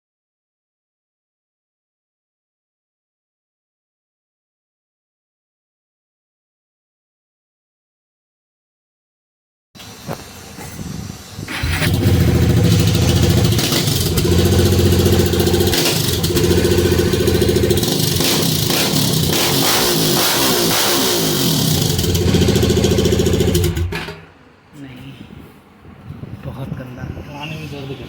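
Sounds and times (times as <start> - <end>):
motorcycle engine starting and running: 11.4 - 24.3.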